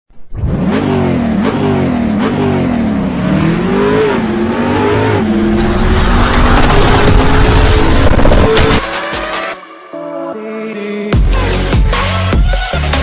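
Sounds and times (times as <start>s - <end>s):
engine revving: 0.2s - 9.0s.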